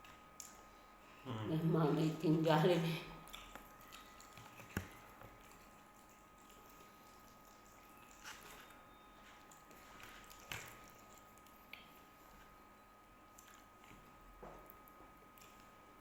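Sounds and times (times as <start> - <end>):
faint steady hum: 0.0 - 16.0
mouth smacks and chewing clicks: 3.2 - 8.7, 9.4 - 12.0.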